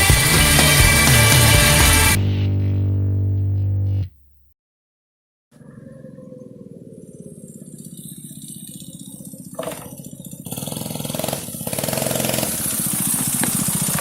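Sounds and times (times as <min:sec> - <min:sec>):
minibike engine running: 0:00.0 - 0:02.2, 0:07.6 - 0:14.0.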